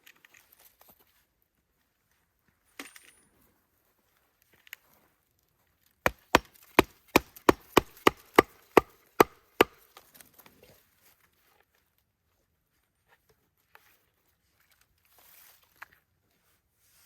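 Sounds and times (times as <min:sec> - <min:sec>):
wood being struck: 0:06.1 - 0:09.8.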